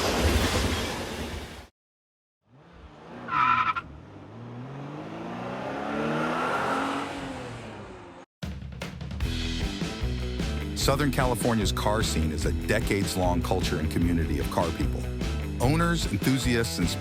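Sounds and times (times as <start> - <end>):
car engine passing by: 2.5 - 8.3
car tyres squealing: 2.6 - 8.1.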